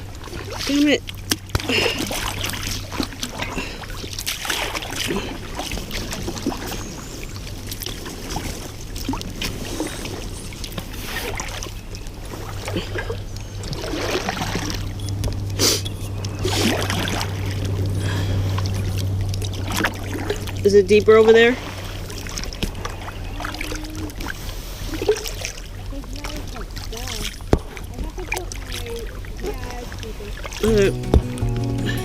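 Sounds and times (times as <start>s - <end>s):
paddle splashing in water: 0.0s - 15.8s.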